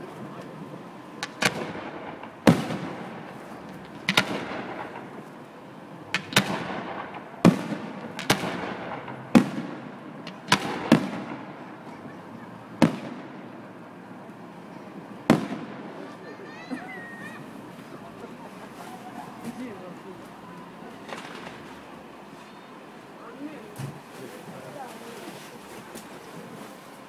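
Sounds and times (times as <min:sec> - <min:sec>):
firework shells bursting: 0:01.2 - 0:11.9, 0:12.8 - 0:13.6, 0:15.3 - 0:16.0, 0:21.1 - 0:21.8
rumbling echo: 0:01.2 - 0:12.0.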